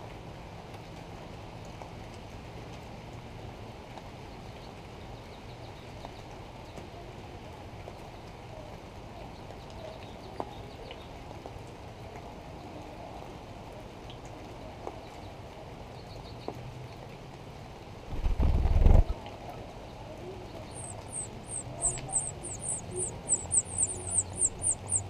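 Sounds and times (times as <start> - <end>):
faint bird chirps: 20.4 - 25.0
low background rumble: 20.5 - 25.0.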